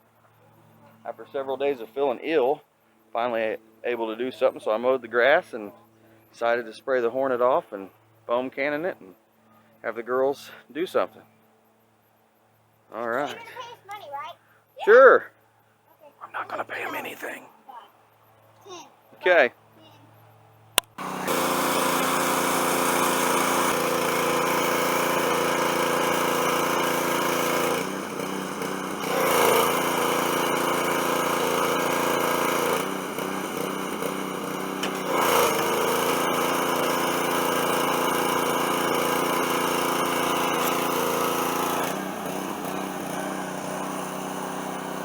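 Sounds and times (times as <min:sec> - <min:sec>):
pressure washer engine running: 0:21.0 - 0:45.0.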